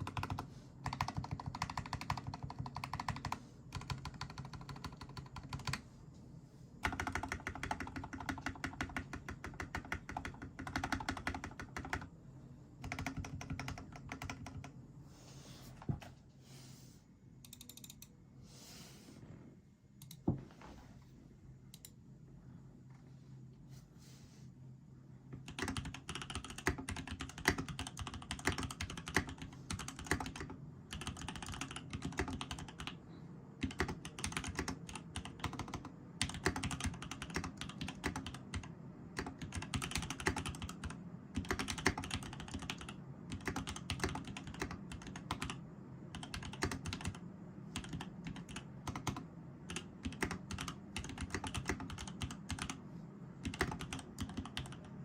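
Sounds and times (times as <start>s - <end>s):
mechanical keyboard typing: 0.0s - 5.8s, 6.8s - 12.1s, 12.8s - 14.7s, 25.4s - 33.0s, 33.6s - 52.8s, 53.4s - 54.9s.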